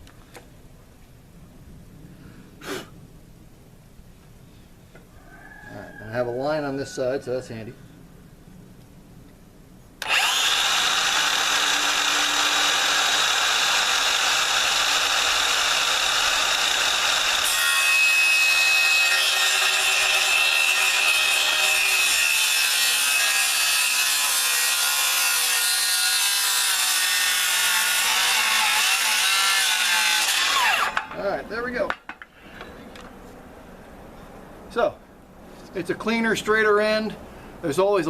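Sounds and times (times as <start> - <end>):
circular saw cutting wood: 10.0 - 31.2.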